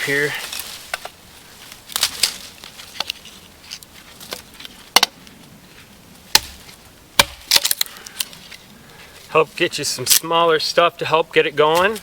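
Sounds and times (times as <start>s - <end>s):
firewood being chopped: 3.8s - 5.3s, 6.3s - 8.3s.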